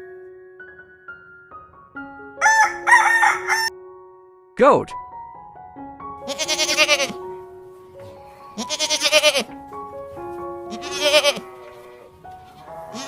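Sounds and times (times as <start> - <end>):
background music: 0.0 - 13.0
goat bleating: 6.2 - 7.2, 8.5 - 9.5, 10.7 - 12.1, 12.7 - 13.0.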